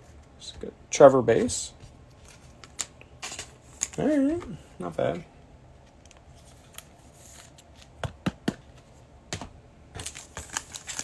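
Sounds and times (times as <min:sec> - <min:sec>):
cards clicking and tapping: 0:07.9 - 0:11.0
foil wrapper crinkling: 0:10.0 - 0:11.0.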